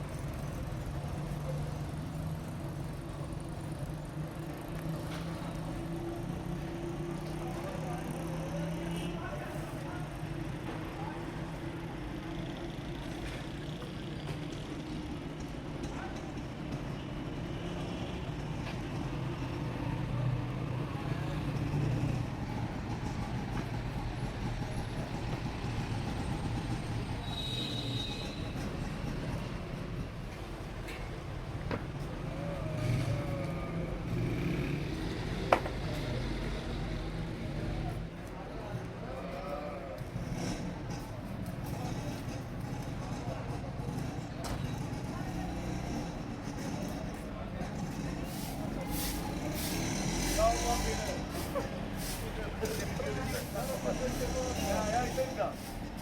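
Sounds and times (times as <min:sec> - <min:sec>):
road traffic noise: 0:00.0 - 0:56.0.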